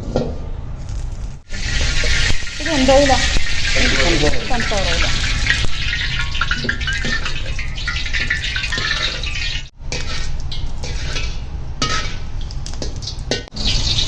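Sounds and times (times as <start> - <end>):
continuous hiss: 0.8 - 6.6.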